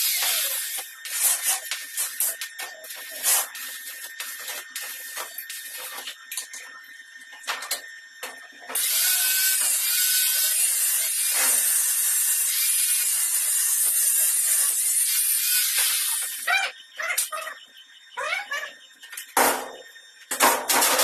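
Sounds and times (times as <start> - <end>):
metalworking tool hissing and rasping: 0.0 - 6.2, 8.8 - 16.5.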